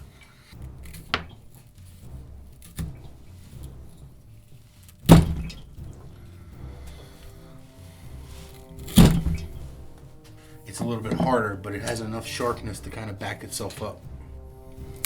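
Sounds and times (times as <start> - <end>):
knife chopping and knocking on surface: 10.8 - 11.4.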